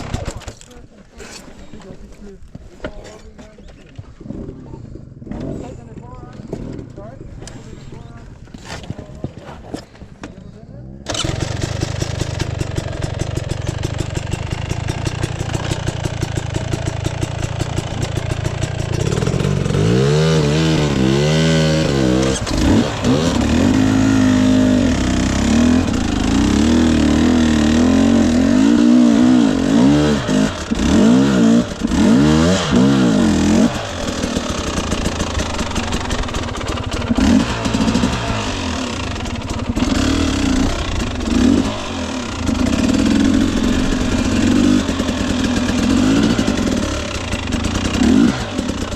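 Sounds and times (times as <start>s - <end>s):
dirt bike engine revving: 11.1s - 48.9s.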